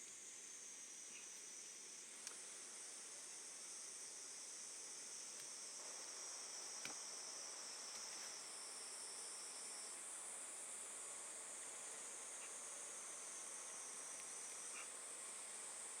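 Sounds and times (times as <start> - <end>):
insects chorus: 0.0 - 16.0
faint click: 6.8 - 7.0.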